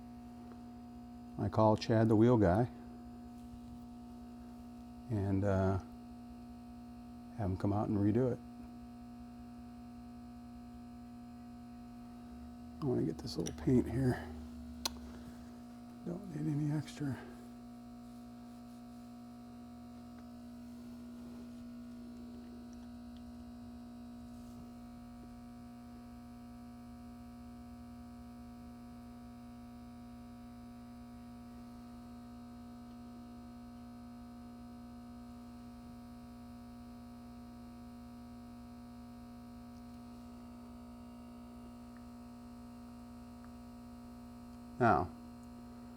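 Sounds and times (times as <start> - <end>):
steady electrical hum: 0.0 - 45.9.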